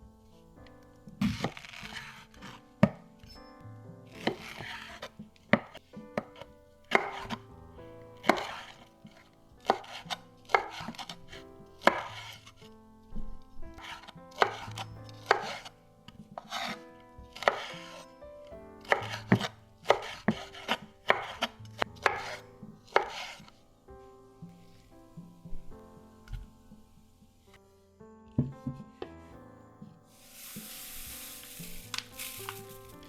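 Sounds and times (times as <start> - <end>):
knife chopping on cutting board: 4.2 - 4.9, 5.5 - 7.4, 8.2 - 11.2, 11.8 - 12.4, 13.8 - 15.7, 17.4 - 17.7, 18.8 - 23.5.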